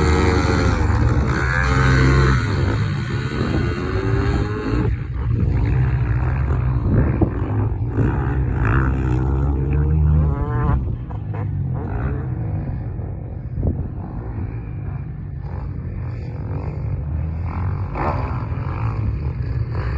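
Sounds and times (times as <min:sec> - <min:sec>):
two-stroke motorbike engine running: 0:00.0 - 0:09.8.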